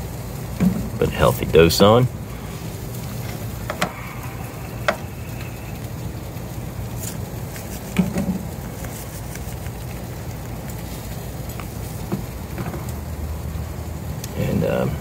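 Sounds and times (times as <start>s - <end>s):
vegetables sizzling in oil: 0.0s - 15.0s
low hum: 2.1s - 9.4s.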